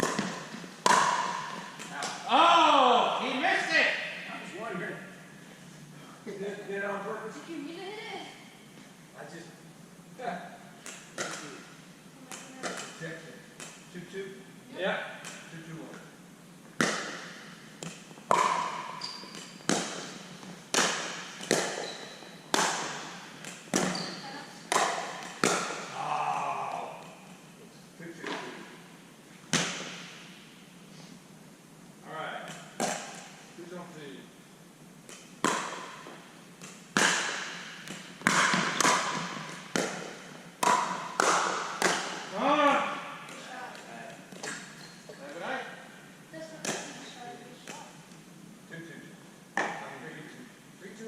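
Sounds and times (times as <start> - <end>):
ball bouncing on court: 0.0 - 2.2, 12.3 - 13.8, 16.8 - 26.0, 35.1 - 42.3
paddles striking pickleball: 0.0 - 2.2, 16.8 - 26.0, 32.5 - 33.4, 35.1 - 42.4.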